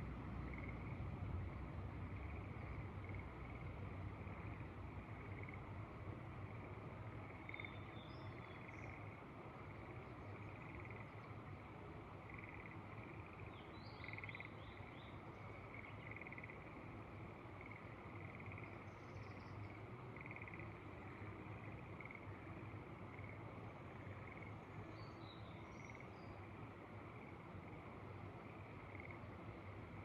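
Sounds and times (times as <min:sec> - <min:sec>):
faint low rush of wind: 0:00.0 - 0:30.0
frogs calling in pulsed trills: 0:00.4 - 0:01.0, 0:02.0 - 0:05.7, 0:06.4 - 0:11.2, 0:12.2 - 0:27.9, 0:28.6 - 0:30.0.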